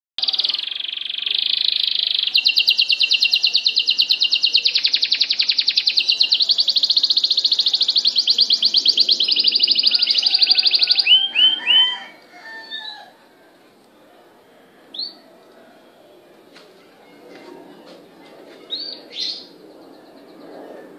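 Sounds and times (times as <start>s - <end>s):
bird whistles and calls: 0.2s - 11.9s
songbird trilling: 0.2s - 12.1s.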